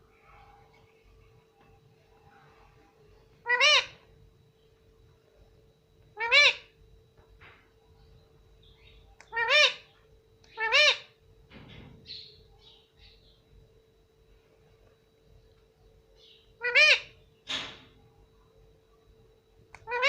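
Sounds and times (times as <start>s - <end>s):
parrot calling: 3.4s - 4.0s, 6.1s - 6.8s, 8.6s - 11.2s, 16.2s - 17.8s, 19.8s - 20.0s
parrot soft chattering: 3.4s - 4.0s, 6.2s - 6.7s, 9.2s - 9.9s, 19.8s - 20.0s.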